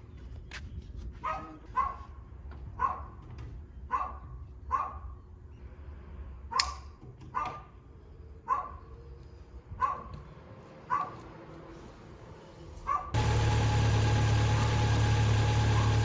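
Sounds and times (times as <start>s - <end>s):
dog barking: 1.2s - 2.2s, 2.8s - 3.2s, 3.9s - 5.2s, 6.5s - 7.8s, 8.4s - 9.0s, 9.8s - 10.2s, 10.9s - 11.2s, 12.9s - 13.2s.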